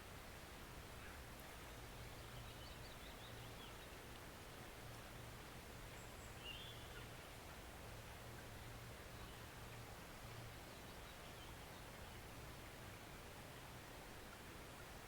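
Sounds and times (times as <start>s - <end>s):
woodland stream rushing: 0.0s - 15.0s
faint bird chirps: 5.9s - 7.2s.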